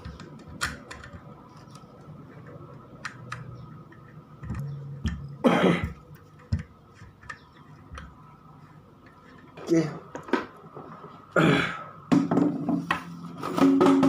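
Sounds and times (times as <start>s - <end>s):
clicks and knocks of handled parts: 0.0s - 5.3s, 5.9s - 8.2s.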